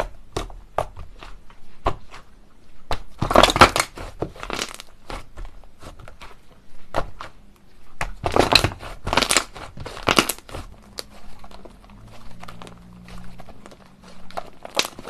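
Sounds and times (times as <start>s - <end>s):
slime crackling and popping: 2.9s - 5.9s, 8.0s - 15.0s.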